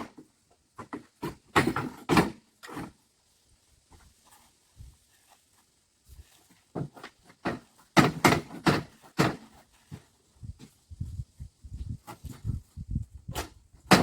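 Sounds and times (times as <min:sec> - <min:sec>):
faint shuffling: 0:03.2 - 0:07.3.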